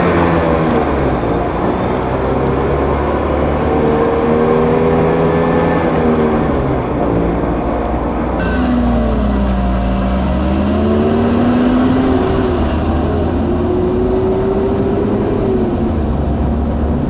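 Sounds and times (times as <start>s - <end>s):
car engine accelerating: 8.4s - 17.0s.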